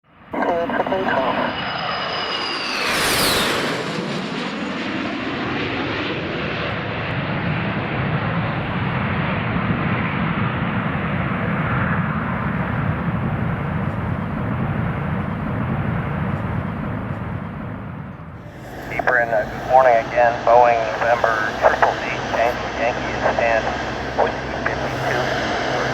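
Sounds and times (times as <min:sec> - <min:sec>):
jet engine roar: 0:00.3 - 0:25.9
jet fan whine: 0:18.4 - 0:25.9.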